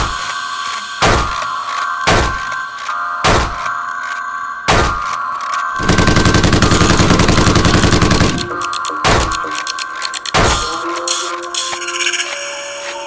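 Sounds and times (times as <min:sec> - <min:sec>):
steady high tone: 0:00.0 - 0:13.0
single gunshot bangs: 0:02.1 - 0:02.5, 0:03.2 - 0:03.6, 0:04.7 - 0:05.1
rapid automatic gunfire: 0:05.8 - 0:09.3.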